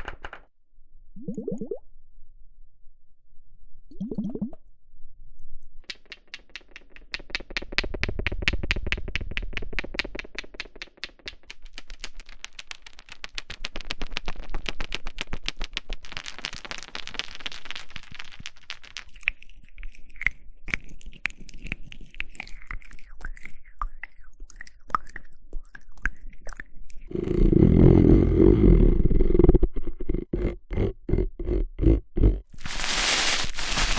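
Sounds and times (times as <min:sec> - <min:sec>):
scratching rustle: 0:32.6 - 0:33.9.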